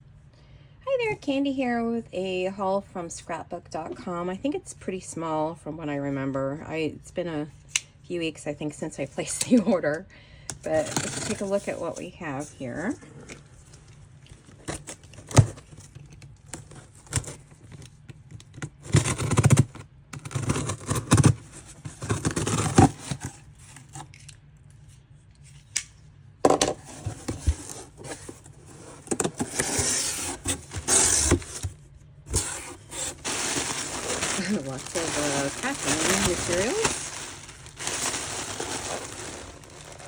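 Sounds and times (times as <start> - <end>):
packing materials rustling: 26.9 - 40.0.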